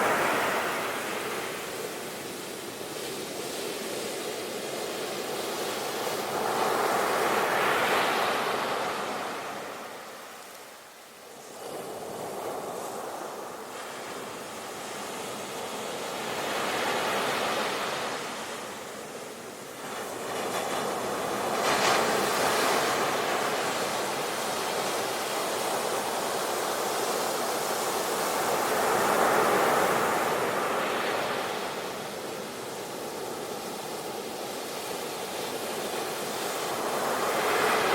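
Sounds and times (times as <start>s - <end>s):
sea waves breaking on shore: 11.5s - 37.9s.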